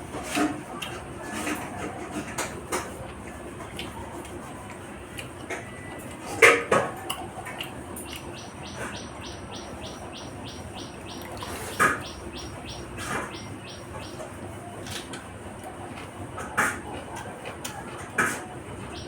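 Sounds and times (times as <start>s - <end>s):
person eating: 3.7s - 6.2s.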